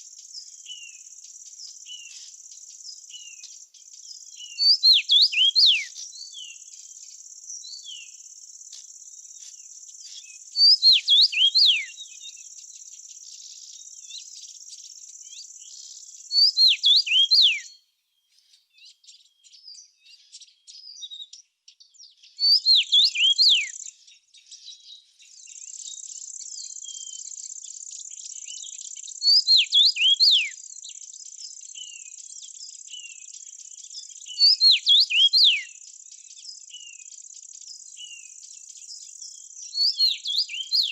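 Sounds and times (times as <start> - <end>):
insect trill: 0.0 - 17.0
bird downward whistles: 4.6 - 5.9, 10.6 - 11.9, 22.5 - 23.7, 29.3 - 30.5, 34.4 - 35.7.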